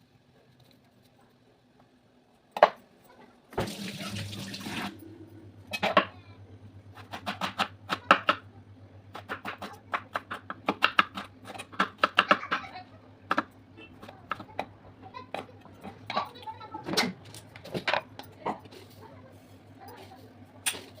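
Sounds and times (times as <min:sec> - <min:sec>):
low steady hum: 0:00.0 - 0:21.0
water running from a tap: 0:03.6 - 0:05.0.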